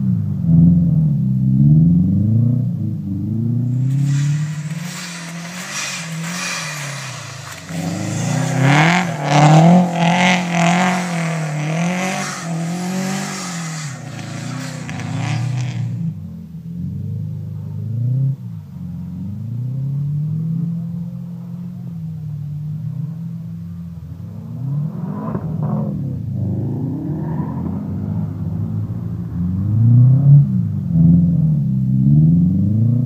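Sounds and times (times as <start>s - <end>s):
car engine revving: 1.8s - 21.8s, 22.9s - 33.0s
tyres churning snow: 3.7s - 16.0s.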